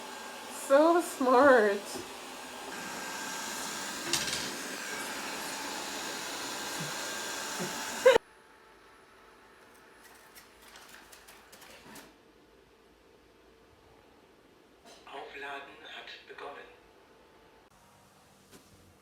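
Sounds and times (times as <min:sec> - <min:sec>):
robot vacuum cleaner whirring: 0:00.0 - 0:08.2.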